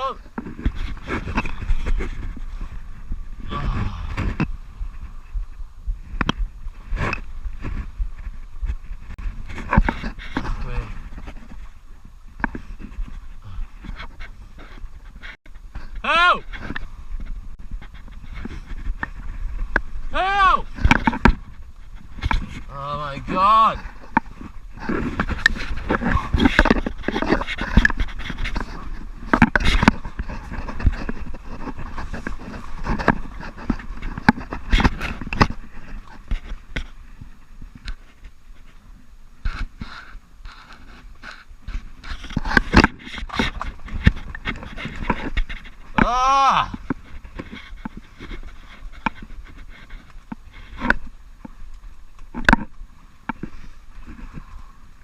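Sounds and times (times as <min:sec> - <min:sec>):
knocks and scrapes: 0:00.0 - 0:55.0
low water noise: 0:00.0 - 0:55.0
wind rumbling on microphone: 0:00.0 - 0:55.0.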